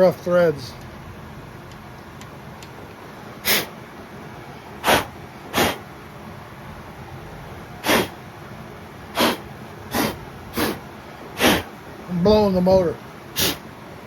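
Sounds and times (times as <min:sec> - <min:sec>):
compressed air blow gun bursts: 0:03.4 - 0:03.8, 0:04.8 - 0:05.9, 0:07.8 - 0:08.2, 0:09.1 - 0:11.8, 0:13.3 - 0:13.7.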